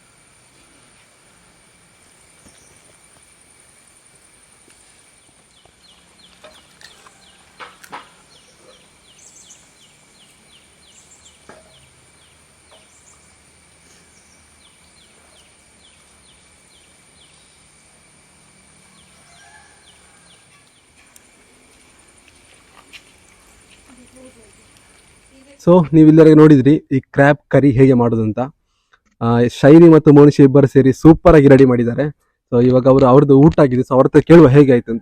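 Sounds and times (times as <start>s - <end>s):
bird chirping: 4.8s - 21.4s.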